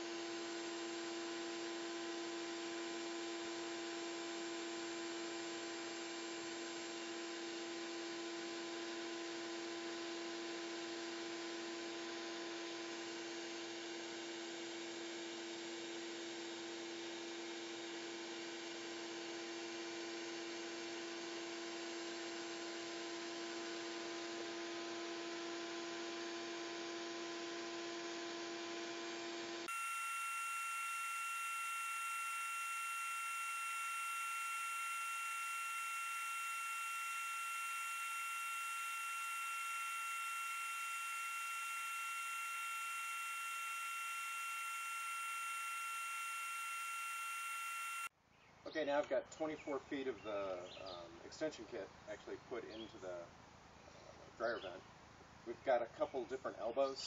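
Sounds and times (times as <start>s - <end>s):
shop vac whining: 0.0s - 48.1s
higher-pitched steady whine: 17.1s - 48.1s.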